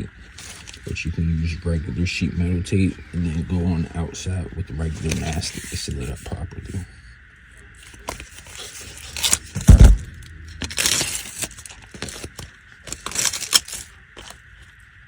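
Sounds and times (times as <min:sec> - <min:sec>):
foil tape crinkling: 0:00.3 - 0:00.9, 0:07.8 - 0:14.5
heavy thump against metal: 0:09.6 - 0:10.3.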